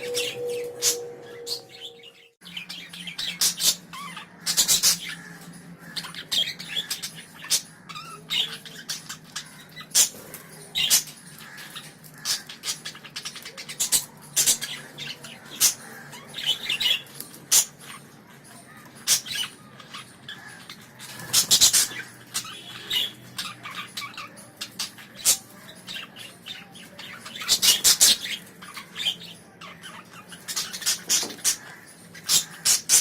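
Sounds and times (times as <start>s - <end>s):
budgerigars chirping and chattering: 0.0s - 33.0s.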